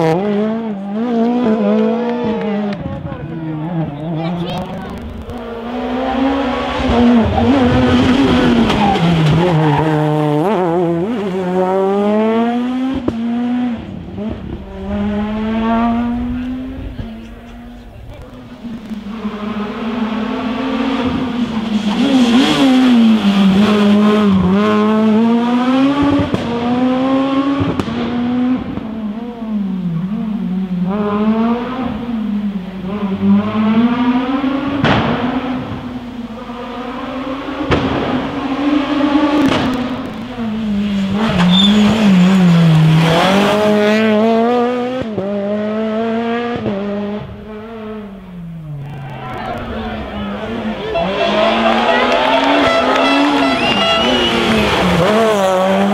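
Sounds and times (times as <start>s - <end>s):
rally car engine revving: 0.0s - 55.9s
sharp cracks from car: 34.8s - 35.8s, 37.6s - 38.3s, 39.3s - 40.3s.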